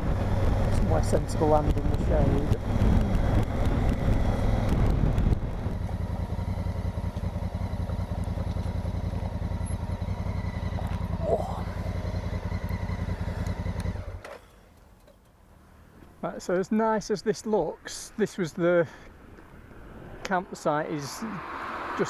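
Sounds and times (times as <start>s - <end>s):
wind noise: 0.0s - 6.0s
motorcycle engine idling: 0.0s - 15.6s.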